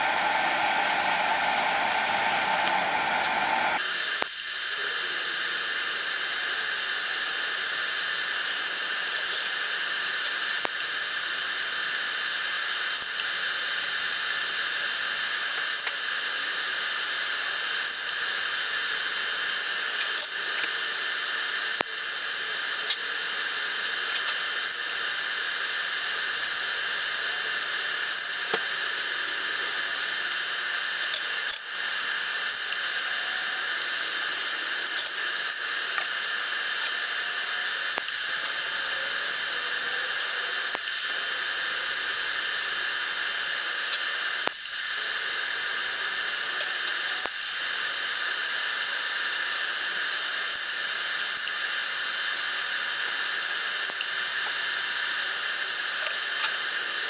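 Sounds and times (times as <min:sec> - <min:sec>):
electric arc welding hiss and pops: 0:00.0 - 0:04.3, 0:34.8 - 0:38.8, 0:40.6 - 0:44.8, 0:45.8 - 0:56.9.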